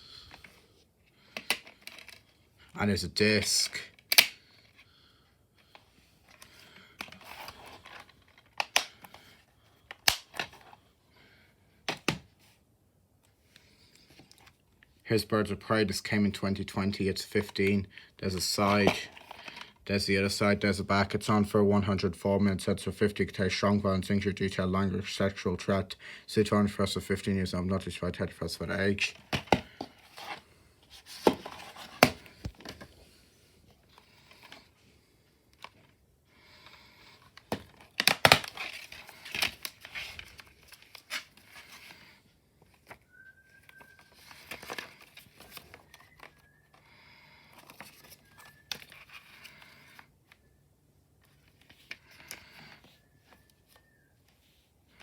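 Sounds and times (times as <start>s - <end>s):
plastic case rustle: 6.2s - 10.9s, 29.0s - 34.8s, 36.6s - 46.8s.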